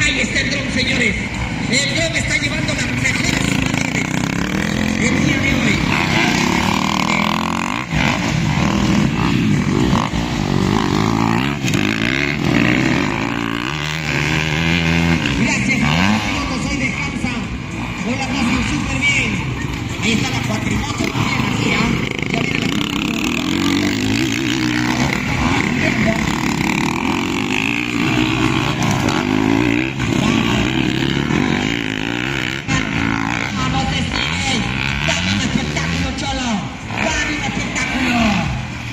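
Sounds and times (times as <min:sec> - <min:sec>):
dirt bike engines revving: 0:00.0 - 0:38.9.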